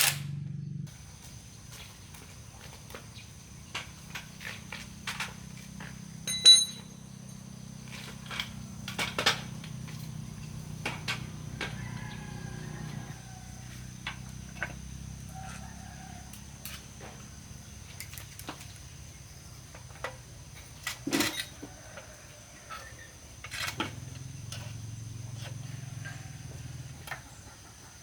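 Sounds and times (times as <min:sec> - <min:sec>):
metal parts clicking and tapping: 0:03.7 - 0:11.8
loud metallic clink: 0:06.3 - 0:07.5.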